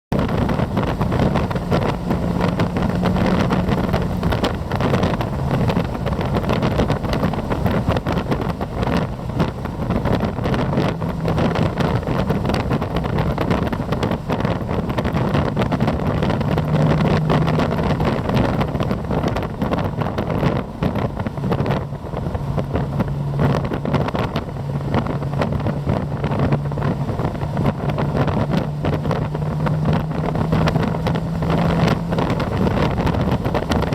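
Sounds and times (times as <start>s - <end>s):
car engine droning: 0.1s - 33.9s
wind buffeting microphone: 0.1s - 33.9s.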